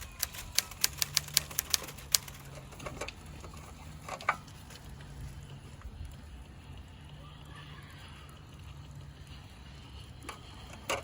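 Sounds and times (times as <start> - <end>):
sharp clicks: 0.0 - 2.5
low steady hum: 0.0 - 11.0.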